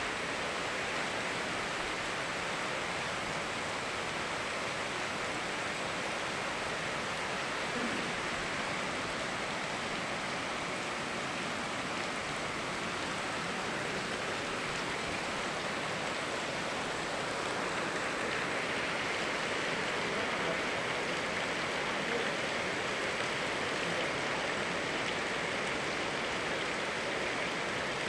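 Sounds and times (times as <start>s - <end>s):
flowing river: 0.0s - 28.0s
rain rushing: 0.0s - 28.0s.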